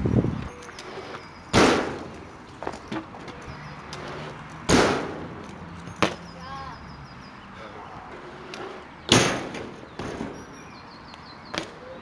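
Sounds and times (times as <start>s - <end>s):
loud impacts: 4.7s - 5.4s, 9.1s - 10.4s.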